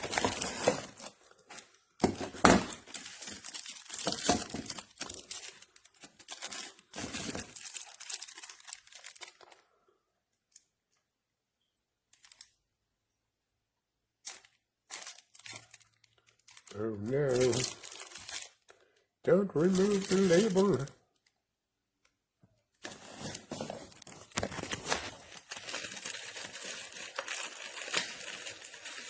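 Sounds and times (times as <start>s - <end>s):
packaging being torn and crinkled: 0.0s - 9.6s, 12.2s - 12.5s, 14.2s - 18.9s, 19.6s - 21.4s, 22.8s - 29.0s.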